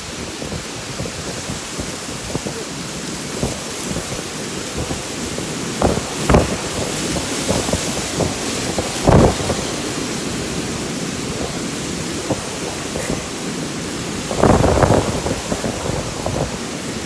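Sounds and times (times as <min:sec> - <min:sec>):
rain and wind hiss: 0:00.0 - 0:17.0
thunder booms: 0:05.8 - 0:10.6, 0:14.2 - 0:16.6.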